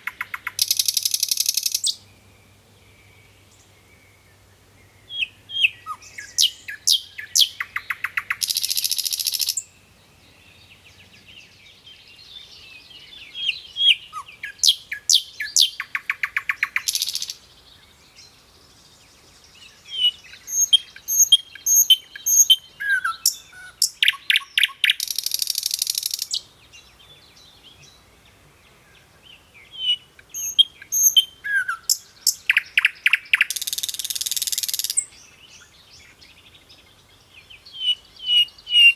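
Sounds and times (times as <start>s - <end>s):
bird chirping and whistling: 5.2s - 9.6s, 13.5s - 17.3s, 20.0s - 26.4s, 29.8s - 35.1s.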